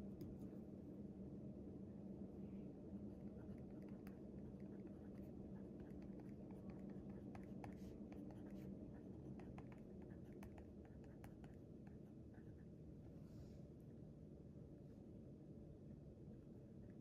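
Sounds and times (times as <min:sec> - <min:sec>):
low room hum: 0:00.0 - 0:17.0
pen scratching on paper: 0:03.4 - 0:12.6.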